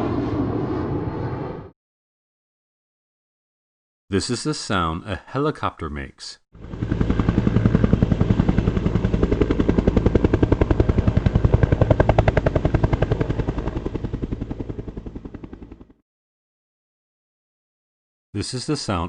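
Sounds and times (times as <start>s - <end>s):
helicopter rotor blades chopping: 6.6s - 16.0s.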